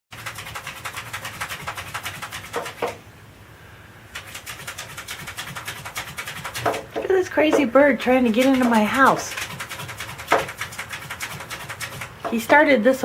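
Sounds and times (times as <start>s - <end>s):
bird tapping on window: 2.5s - 3.0s, 6.5s - 7.7s, 10.2s - 10.6s.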